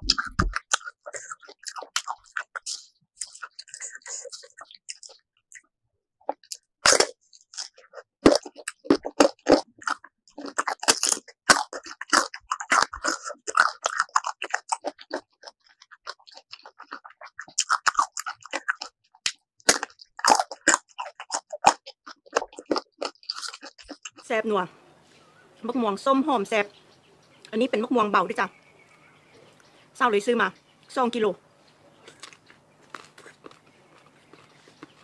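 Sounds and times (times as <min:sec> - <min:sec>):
crunching bites of fruit: 0:00.0 - 0:05.2, 0:06.3 - 0:24.3, 0:32.0 - 0:35.0.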